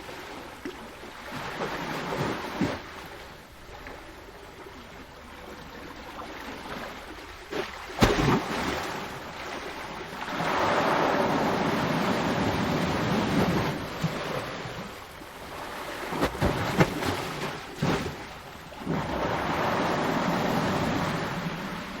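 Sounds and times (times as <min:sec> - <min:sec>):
ocean waves breaking: 0:05.4 - 0:22.0.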